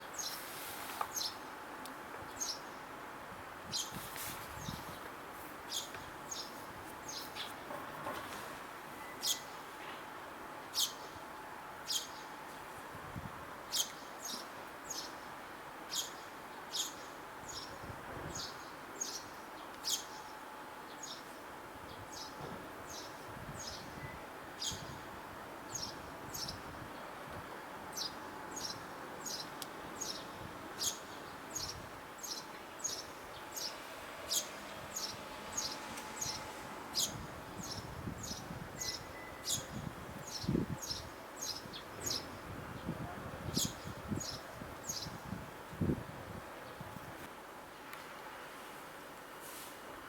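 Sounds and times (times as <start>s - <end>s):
steady background noise: 0.0s - 50.0s
sparrows chirping: 0.1s - 0.4s, 1.1s - 1.4s, 2.4s - 2.9s, 3.7s - 4.0s, 5.7s - 7.6s, 9.0s - 9.7s, 10.7s - 11.2s, 11.8s - 12.4s, 13.7s - 15.3s, 15.9s - 25.1s, 25.7s - 27.1s, 27.9s - 45.3s.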